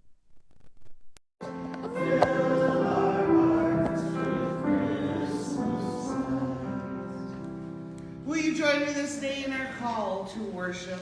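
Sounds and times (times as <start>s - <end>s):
church choir singing: 1.4s - 8.8s.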